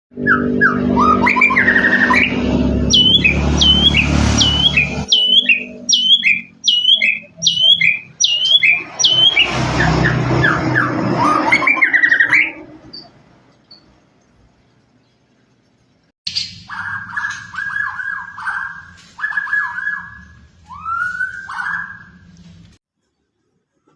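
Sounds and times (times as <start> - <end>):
low hum: 0.1 - 16.0
bird singing whistled song: 0.2 - 13.1, 16.3 - 22.2.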